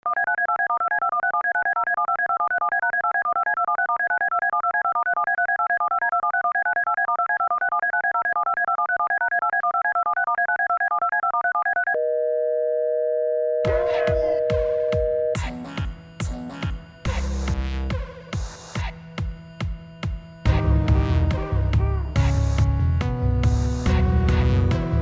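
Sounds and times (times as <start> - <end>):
rapid electronic beeping: 0.0 - 12.0, 13.7 - 25.0
phone-line signal tones: 11.2 - 15.5
steady electronic tone: 13.6 - 15.6.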